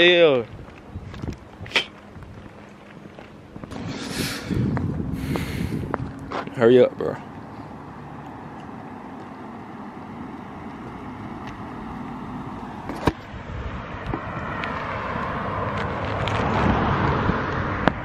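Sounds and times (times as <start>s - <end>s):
car approaching on road: 0.0s - 18.0s
wind on microphone: 0.4s - 2.5s, 3.6s - 6.4s, 13.2s - 14.4s.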